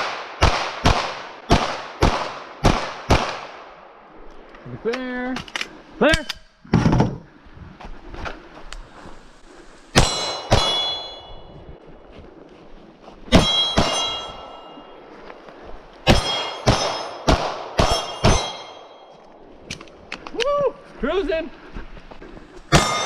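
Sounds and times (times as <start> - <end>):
gunshots: 0.0 - 3.9, 16.0 - 18.9, 22.7 - 23.0
steel plates ringing: 9.9 - 11.7, 13.3 - 15.3, 16.0 - 19.3, 22.7 - 23.0.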